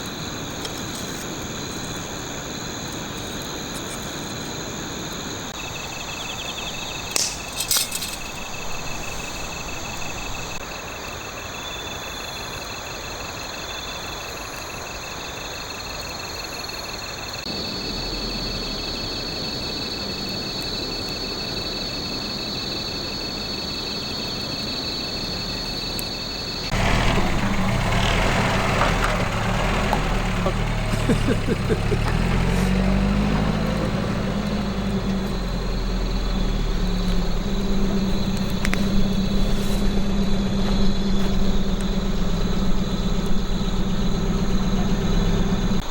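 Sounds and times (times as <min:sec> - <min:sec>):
crickets trilling: 0:00.0 - 0:45.9
sharp clicks: 0:06.8 - 0:10.4
low background rumble: 0:26.7 - 0:45.9
loud low rumble: 0:29.0 - 0:45.9.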